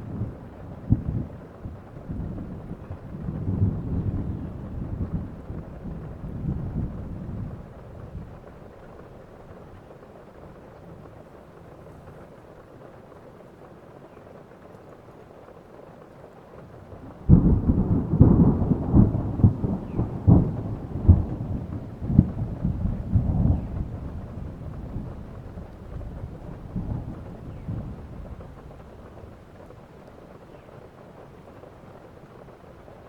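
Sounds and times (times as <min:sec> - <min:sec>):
thunder rumbling: 0:00.0 - 0:11.2, 0:16.6 - 0:33.0
steady rain: 0:00.0 - 0:33.0.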